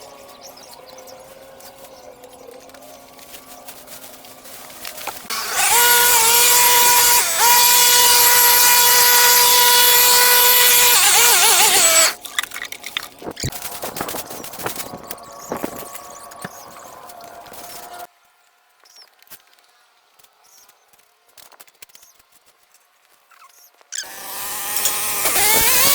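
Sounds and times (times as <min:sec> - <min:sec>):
power tool motor whining: 0:05.3 - 0:12.2, 0:24.0 - 0:25.9.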